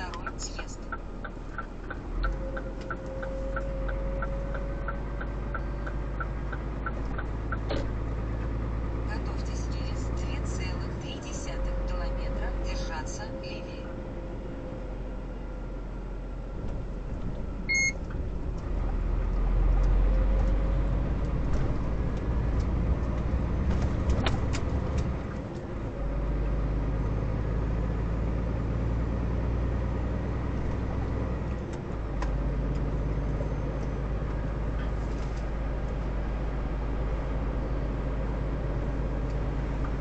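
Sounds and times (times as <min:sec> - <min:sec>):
vehicle engine accelerating: 0:00.0 - 0:40.0
short electronic beep: 0:17.7 - 0:18.0.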